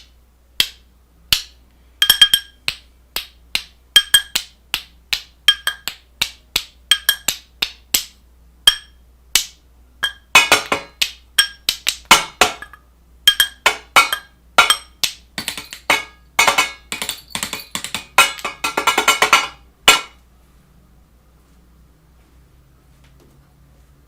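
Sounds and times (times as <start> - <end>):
sharp knocks on hard object: 8.7 - 20.2.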